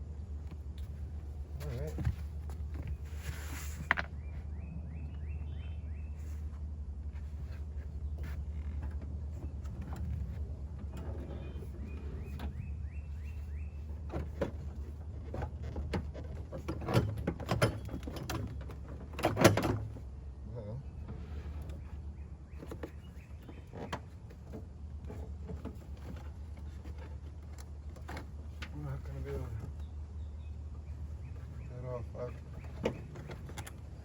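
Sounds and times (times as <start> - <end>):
parts knocking and clattering: 13.9 - 20.1, 32.3 - 34.0.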